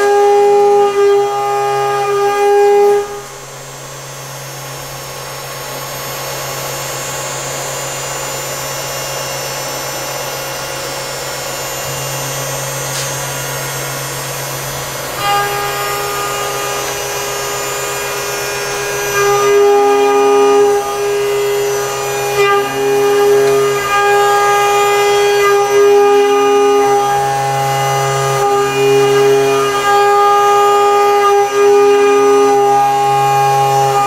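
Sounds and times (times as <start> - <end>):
machine high whine: 0.0 - 34.0
rushing milling noise: 10.8 - 34.0.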